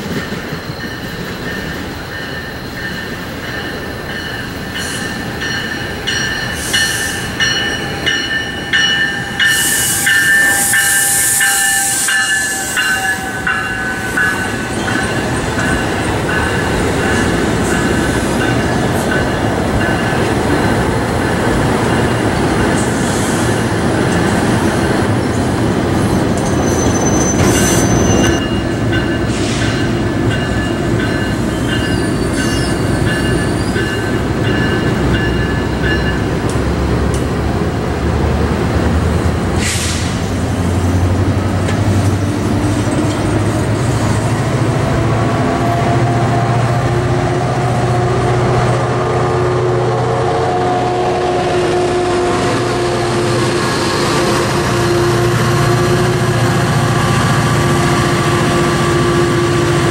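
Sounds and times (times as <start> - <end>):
train rolling on rails: 0.0 - 59.9
high wheel squeal: 0.4 - 18.6, 25.2 - 34.4.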